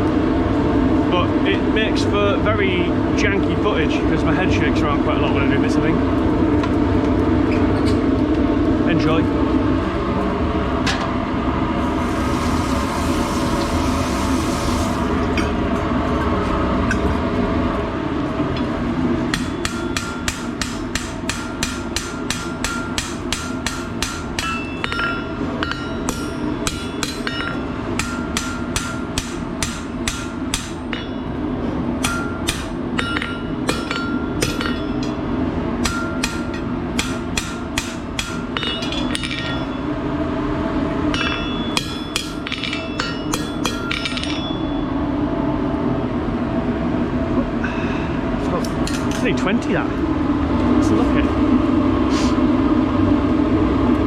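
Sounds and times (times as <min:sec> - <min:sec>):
low rumble: 0:08.7 - 0:19.3
hammer ringing on hot steel: 0:19.3 - 0:35.2, 0:35.8 - 0:40.0, 0:41.1 - 0:45.0.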